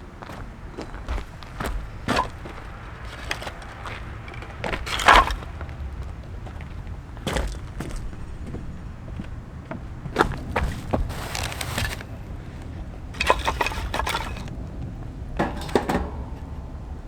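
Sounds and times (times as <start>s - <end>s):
knocks and clatters of handling: 0.8s - 5.8s, 9.7s - 17.0s.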